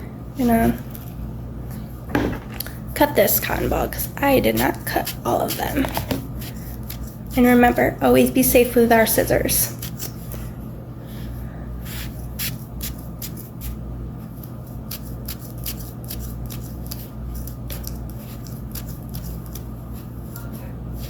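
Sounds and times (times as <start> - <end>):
low steady hum: 0.0 - 21.0
scissors snipping cotton ball: 4.4 - 7.5, 14.4 - 19.7.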